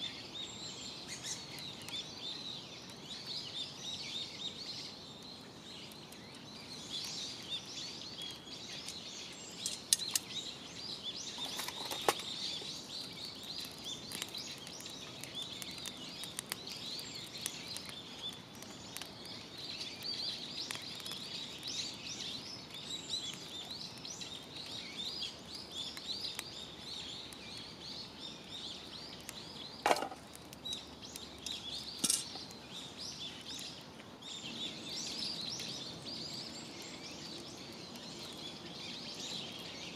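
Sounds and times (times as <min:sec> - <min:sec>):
birds chirping and singing: 0:00.0 - 0:39.9
wood fire crackles: 0:00.0 - 0:39.9.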